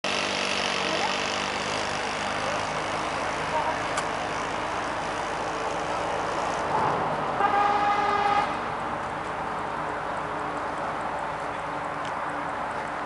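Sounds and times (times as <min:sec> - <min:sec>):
engine and traffic noise: 0:00.0 - 0:13.0
vehicle horn honk: 0:07.4 - 0:08.7.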